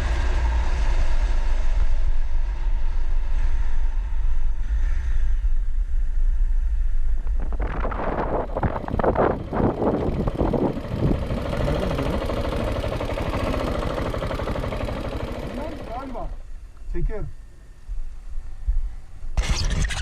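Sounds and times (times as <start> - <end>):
motorcycle engine: 0.0 - 1.3, 7.9 - 16.7
wind rumble on microphone: 0.0 - 12.3.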